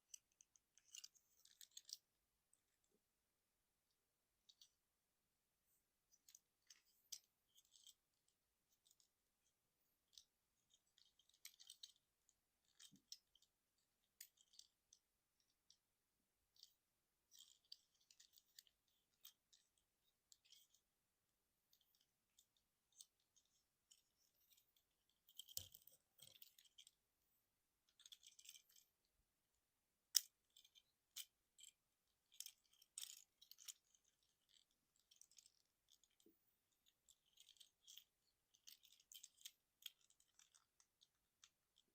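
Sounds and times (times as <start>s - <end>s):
plastic toy parts clicking: 0.0s - 2.0s, 6.1s - 15.8s, 16.5s - 16.7s, 17.3s - 20.8s, 21.7s - 27.0s, 27.9s - 28.8s, 30.1s - 41.9s.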